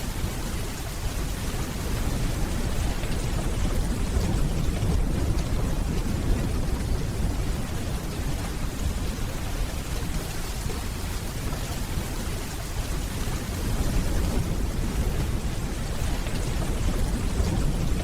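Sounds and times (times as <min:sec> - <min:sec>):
steady rainfall: 0:00.0 - 0:18.0
distant thunder rumbling: 0:01.8 - 0:09.8, 0:13.6 - 0:18.0.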